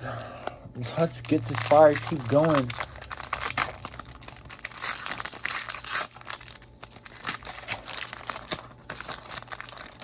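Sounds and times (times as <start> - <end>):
foil wrapper crinkling: 0.8 - 10.0.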